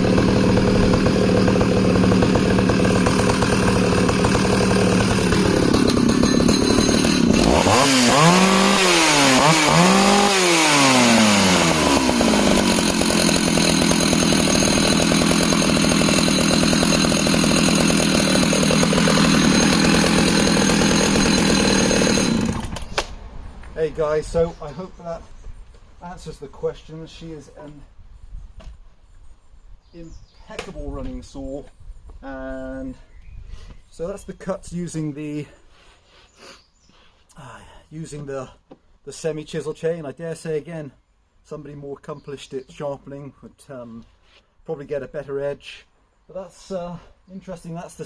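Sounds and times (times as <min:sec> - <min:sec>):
chainsaw cutting log: 0:00.0 - 0:23.1.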